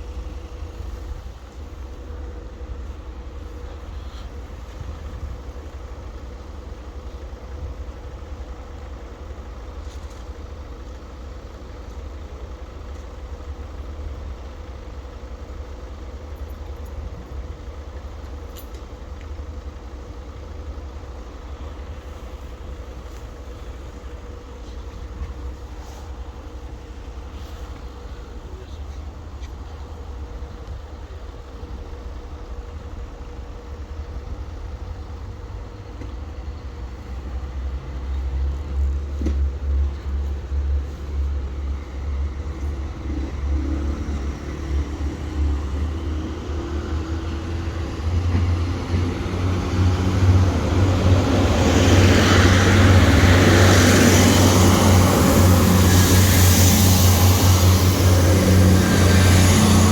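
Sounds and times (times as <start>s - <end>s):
low engine rumble: 0.0s - 59.9s
loud rushing noise: 48.5s - 59.9s.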